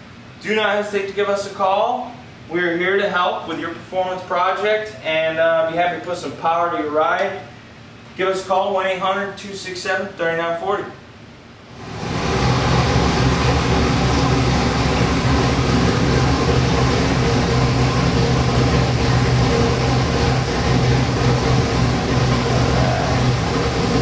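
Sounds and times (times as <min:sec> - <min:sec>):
car engine running steadily: 0:11.8 - 0:24.0.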